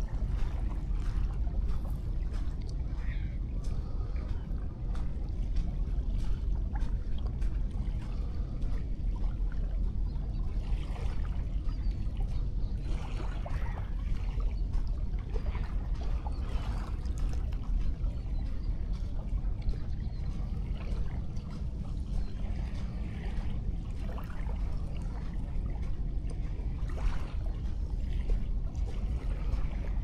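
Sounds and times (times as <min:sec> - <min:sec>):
gentle waves washing on sand: 0:00.0 - 0:30.0
low rumble: 0:00.0 - 0:30.0.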